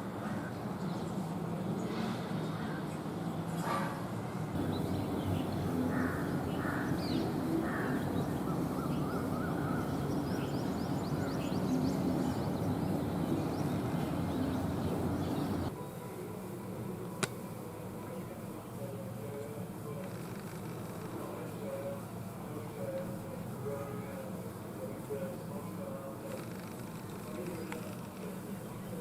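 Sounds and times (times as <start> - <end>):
crow cawing: 4.6 - 15.7
low background rumble: 4.6 - 15.7.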